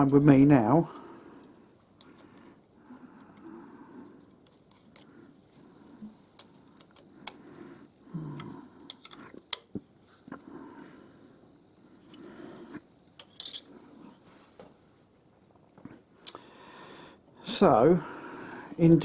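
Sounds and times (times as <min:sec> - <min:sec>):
metallic clicks of hand tools: 0:08.9 - 0:09.7
soft shuffling: 0:14.2 - 0:14.9.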